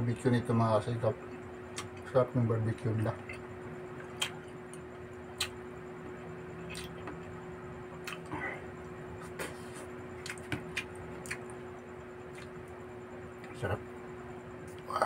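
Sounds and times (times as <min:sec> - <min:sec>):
faint hum: 0:00.0 - 0:15.0
lip-smacking clicks: 0:05.4 - 0:05.6
wet chewing: 0:06.6 - 0:07.2, 0:10.2 - 0:11.6.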